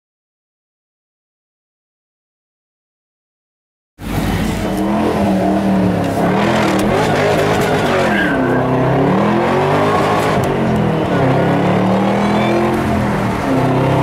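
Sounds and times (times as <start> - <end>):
car engine revving: 4.0 - 14.0.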